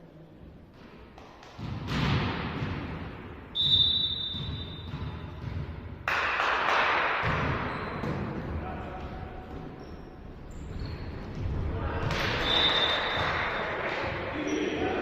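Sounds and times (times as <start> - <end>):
sports hall noise: 0.0 - 15.0
referee's whistle blast: 3.5 - 4.9.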